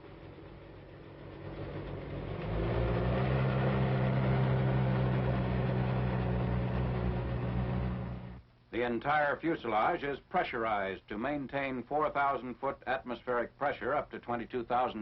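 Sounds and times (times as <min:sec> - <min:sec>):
propeller aircraft engines droning: 0:00.0 - 0:08.4.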